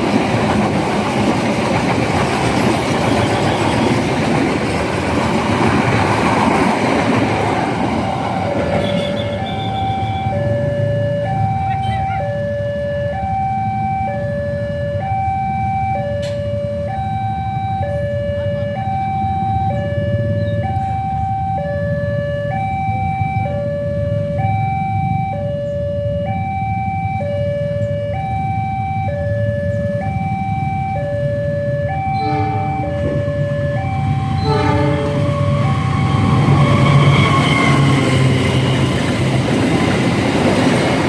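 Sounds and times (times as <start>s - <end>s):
level crossing alarm two-tone: 8.0s - 36.4s.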